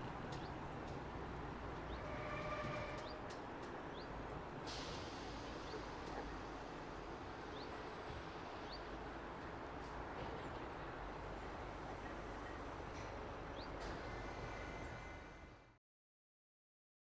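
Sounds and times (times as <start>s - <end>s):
brief hiss: 4.6s - 6.2s.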